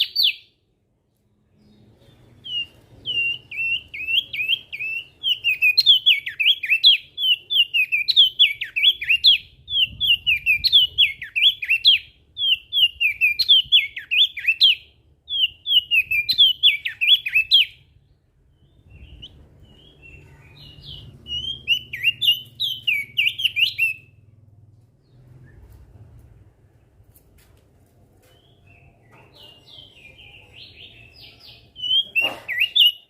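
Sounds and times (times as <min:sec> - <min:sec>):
bird chirping song: 0:00.0 - 0:27.1, 0:28.1 - 0:33.0
faint low rumble: 0:24.0 - 0:29.0.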